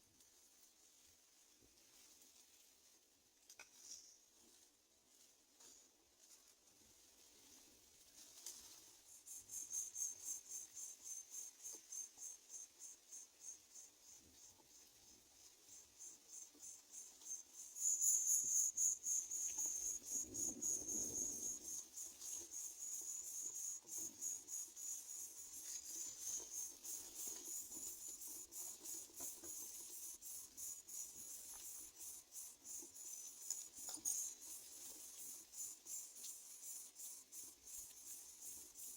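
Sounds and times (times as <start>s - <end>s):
insect pulsing trill: 9.0s - 38.9s.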